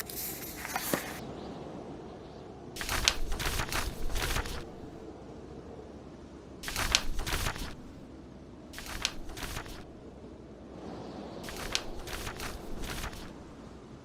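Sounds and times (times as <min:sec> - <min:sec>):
book pages turning: 0:00.0 - 0:01.2, 0:02.8 - 0:05.0, 0:06.6 - 0:08.0, 0:08.8 - 0:09.9, 0:11.5 - 0:13.4
low background hiss: 0:00.0 - 0:14.0.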